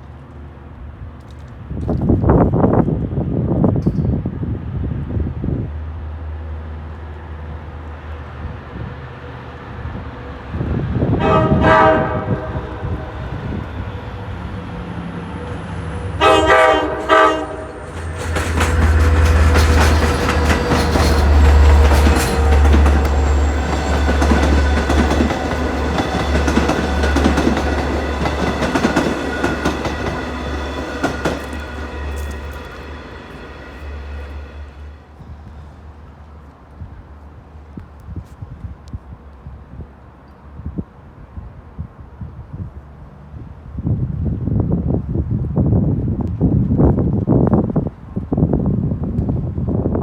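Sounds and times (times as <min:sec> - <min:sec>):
train passing with low rumble: 0:00.0 - 0:50.0
train horn blasts: 0:11.0 - 0:13.9, 0:16.0 - 0:34.9
wheels clattering over rails: 0:17.0 - 0:34.6.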